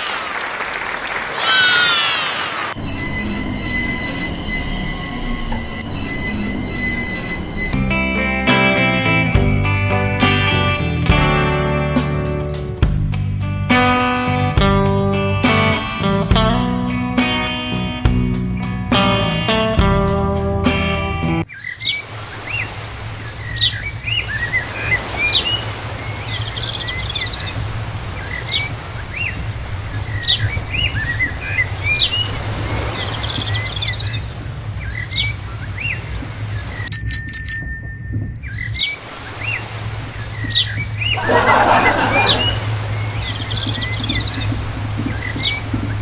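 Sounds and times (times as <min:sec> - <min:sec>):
bell-like ring: 0:02.8 - 0:07.8, 0:36.9 - 0:38.4
small birds chirping: 0:02.8 - 0:07.8, 0:42.2 - 0:46.0
steady low hum: 0:02.8 - 0:07.8.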